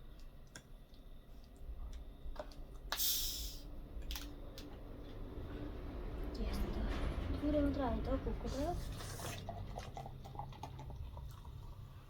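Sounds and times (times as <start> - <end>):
soda can opening fizz: 2.9 - 3.6.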